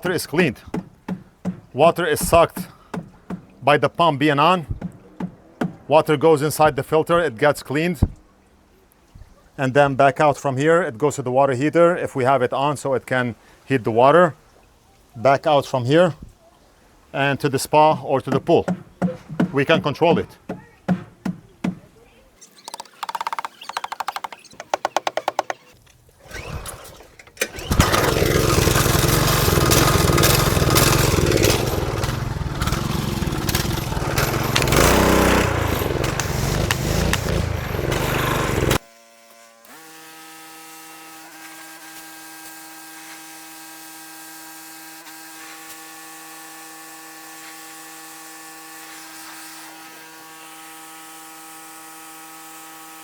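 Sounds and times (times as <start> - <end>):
pressure washer spraying: 27.5 - 38.8.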